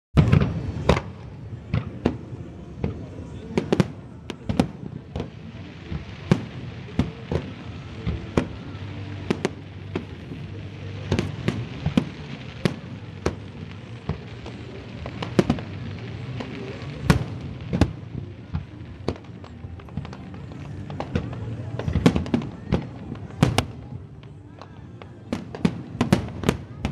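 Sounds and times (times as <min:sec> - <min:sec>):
fireworks bursting with sharp bangs: 0:00.2 - 0:26.9.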